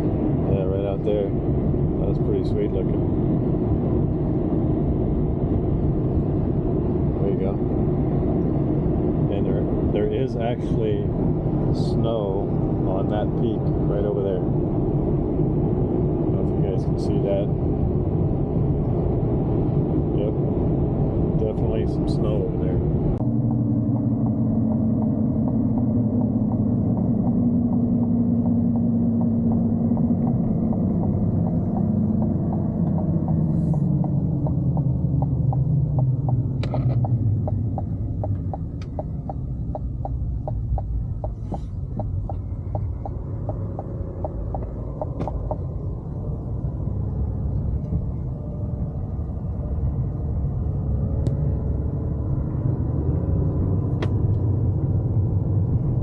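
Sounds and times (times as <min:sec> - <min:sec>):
truck engine and road rumble: 0:00.0 - 0:56.0
regular ticking: 0:23.2 - 0:46.4.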